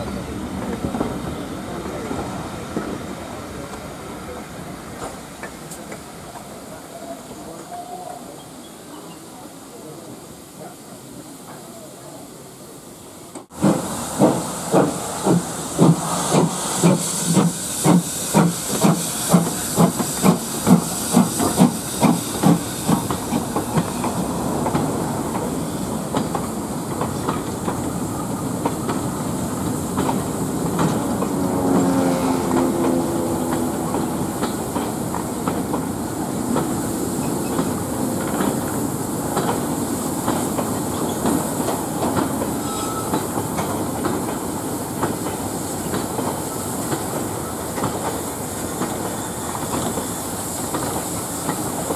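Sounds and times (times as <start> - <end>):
steam hissing: 0.1 - 51.9
steam locomotive exhaust chuffs: 13.5 - 51.9.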